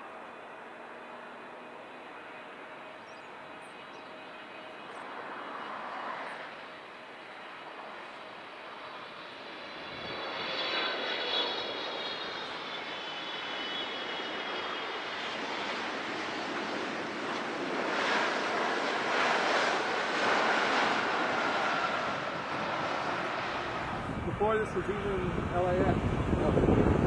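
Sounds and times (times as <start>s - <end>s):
airplane engine passing: 0.0s - 27.0s
faint high engine whine: 0.0s - 27.0s.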